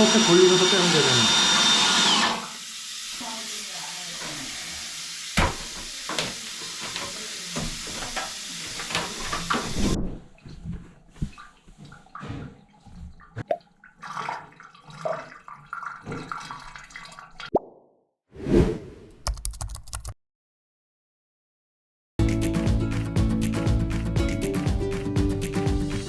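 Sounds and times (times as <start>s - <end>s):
water running into drain: 2.9s - 9.9s, 12.8s - 17.5s.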